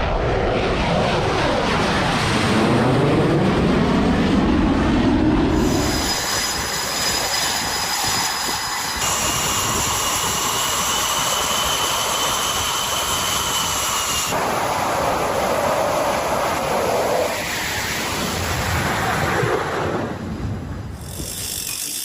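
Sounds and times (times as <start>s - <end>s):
high whine: 5.5s - 19.2s
loud machinery noise: 5.5s - 19.4s, 20.9s - 22.0s
broad rushing noise: 5.5s - 21.8s.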